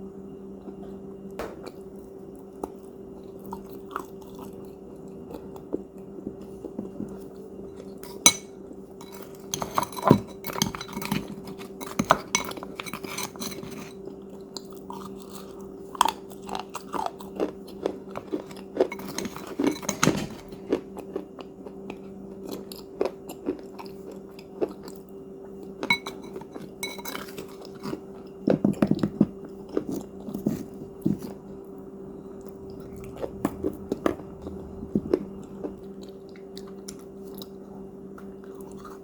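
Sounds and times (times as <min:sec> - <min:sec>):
person chewing crunchy cookies: 0:01.6 - 0:07.2, 0:07.8 - 0:39.0
low hum: 0:30.3 - 0:38.7.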